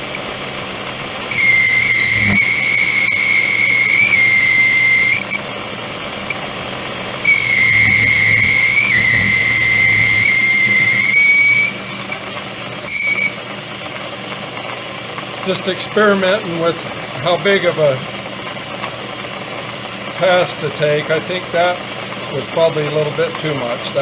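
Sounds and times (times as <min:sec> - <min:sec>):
lathe tool squealing: 0:00.0 - 0:00.3, 0:01.3 - 0:05.6, 0:06.2 - 0:13.5
machine hum: 0:00.0 - 0:22.6.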